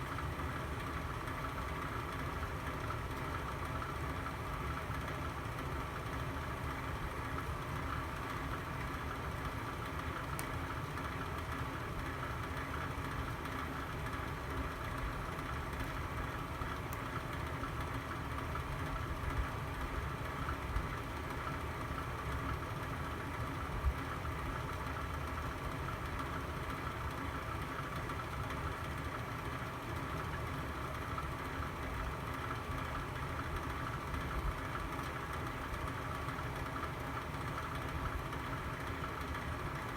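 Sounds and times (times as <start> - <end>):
fireplace burning: 6.8 - 21.6.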